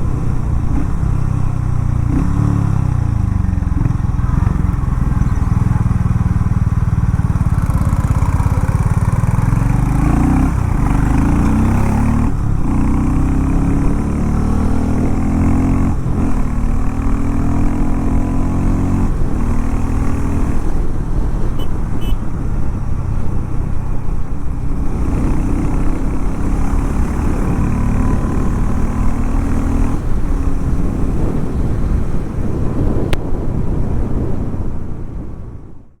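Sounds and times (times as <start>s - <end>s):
motorcycle engine revving: 0.0s - 34.2s.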